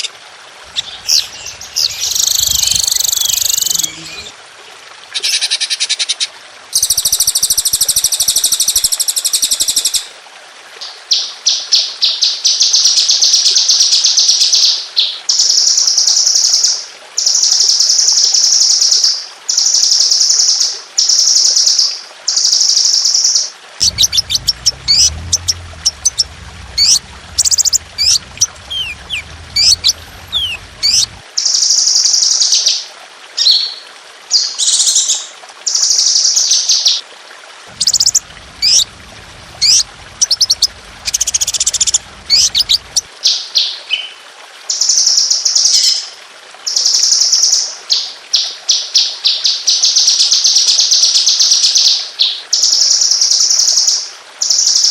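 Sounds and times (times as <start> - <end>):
faint low hum: 0.7 - 4.4, 23.8 - 31.2, 37.7 - 43.1
songbird high rapid trills: 0.7 - 4.4, 23.8 - 31.2, 37.8 - 43.1
downward-slurred whistles: 0.8 - 4.3.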